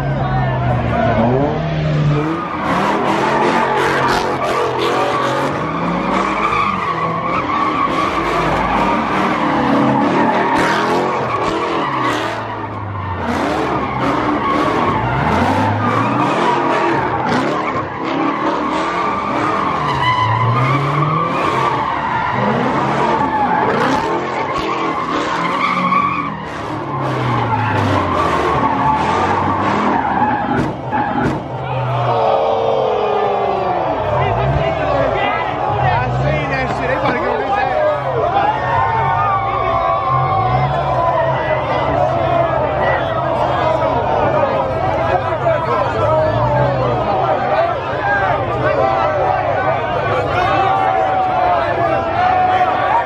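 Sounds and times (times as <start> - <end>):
car engine revving: 0.0 - 31.9
car tires squealing: 0.1 - 53.0.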